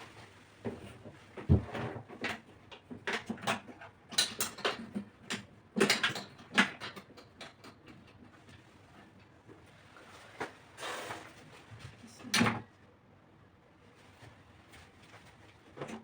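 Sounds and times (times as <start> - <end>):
objects knocking and clattering: 0.6 - 8.6.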